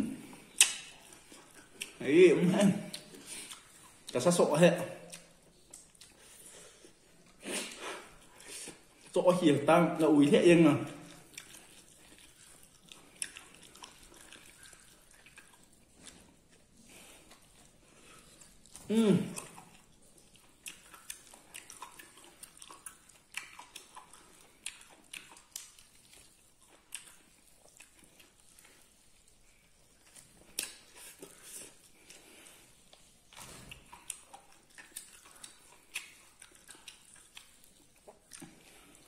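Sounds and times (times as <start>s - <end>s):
person chewing food: 0.0s - 9.4s, 10.8s - 39.0s
mouth smacks: 0.1s - 2.0s.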